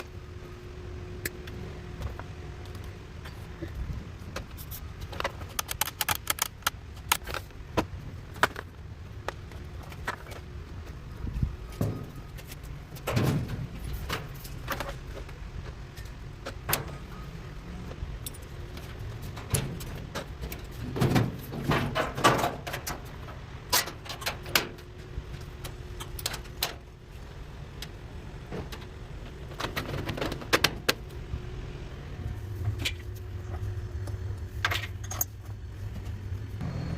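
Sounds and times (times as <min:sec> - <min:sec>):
low steady hum: 0:00.0 - 0:36.9
deep motor hum: 0:35.5 - 0:36.9.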